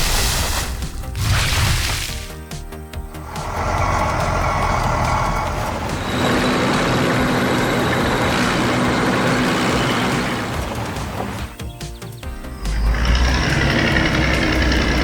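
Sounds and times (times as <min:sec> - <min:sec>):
heavy vehicle engine: 0:03.0 - 0:15.0
low hum: 0:03.1 - 0:11.4.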